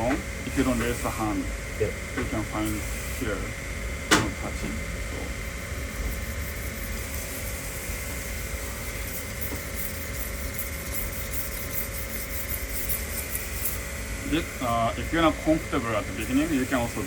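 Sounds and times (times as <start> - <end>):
low room hum: 0.0 - 17.0
knife scraping on whetstone: 5.7 - 7.9, 8.7 - 14.0.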